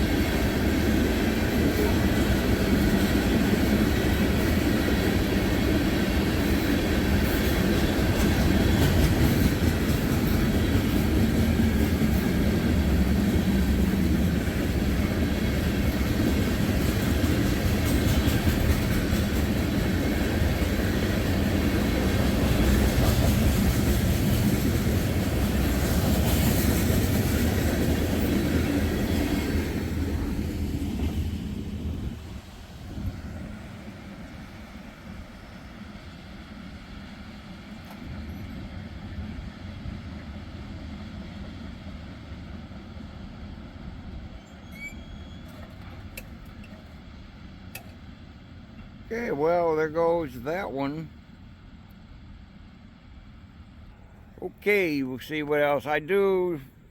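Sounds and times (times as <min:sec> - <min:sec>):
train wheels clacking on rails: 0:00.0 - 0:32.0.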